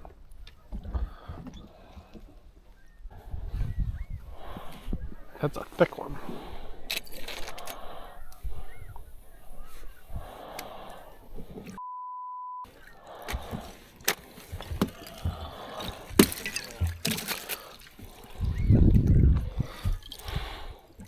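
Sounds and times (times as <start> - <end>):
censor bleep: 11.8 - 12.7
water splashing and trickling: 12.7 - 21.0.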